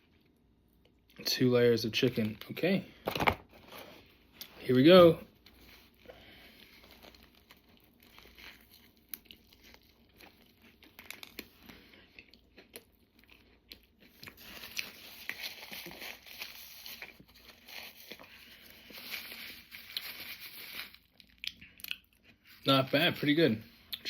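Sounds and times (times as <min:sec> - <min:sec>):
chewing crunchy food: 0:05.3 - 0:22.7.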